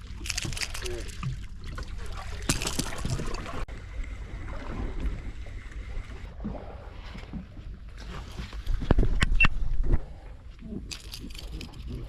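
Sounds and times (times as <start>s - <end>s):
water splashing: 0.0s - 7.1s
wind: 0.0s - 12.0s.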